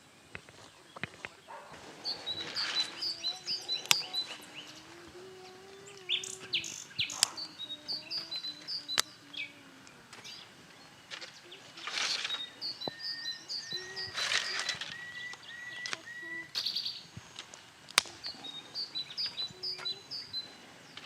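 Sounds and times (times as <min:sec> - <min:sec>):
birds chirping: 0:00.0 - 0:21.0
sharp clicks: 0:05.9 - 0:09.2.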